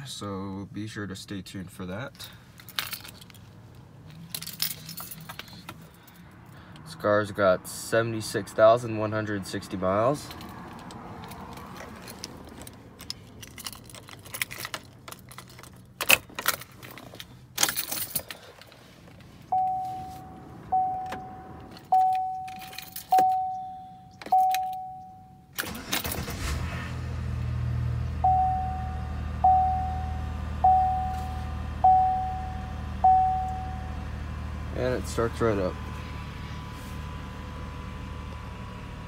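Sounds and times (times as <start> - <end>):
car engine starting and idling: 0.0 - 39.0
keys jangling in ignition: 2.5 - 6.2, 10.1 - 26.6
dashboard chime: 19.5 - 25.4, 28.2 - 34.0.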